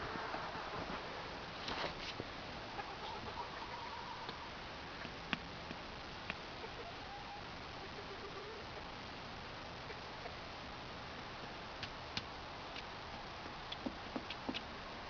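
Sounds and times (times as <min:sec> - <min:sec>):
steady hiss: 0:00.0 - 0:15.0
chickens clucking: 0:02.7 - 0:05.1, 0:06.5 - 0:08.9.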